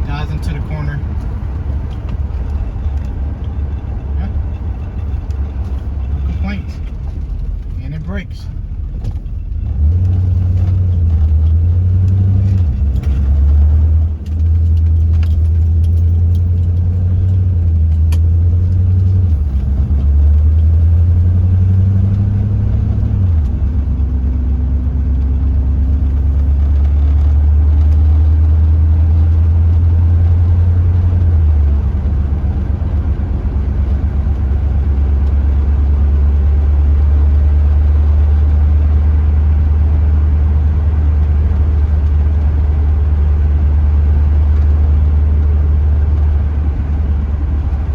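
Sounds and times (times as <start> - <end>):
car engine droning: 0.0 - 47.9.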